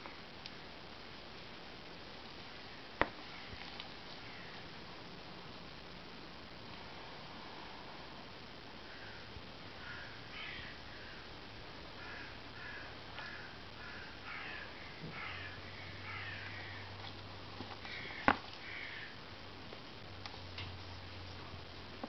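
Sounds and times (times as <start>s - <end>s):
bird cawing: 3.3s - 3.6s, 4.2s - 4.6s, 8.8s - 11.3s, 12.0s - 17.0s, 17.8s - 19.2s.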